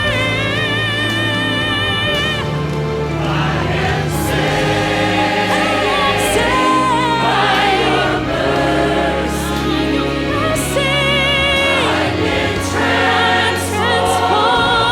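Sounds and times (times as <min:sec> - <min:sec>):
sustained bass and chords: 0:00.0 - 0:14.9
voices singing long notes: 0:00.0 - 0:14.9.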